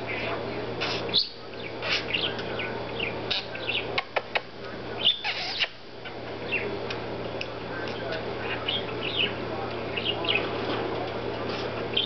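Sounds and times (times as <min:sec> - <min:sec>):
parakeet chattering: 0:00.1 - 0:06.7, 0:08.4 - 0:10.4.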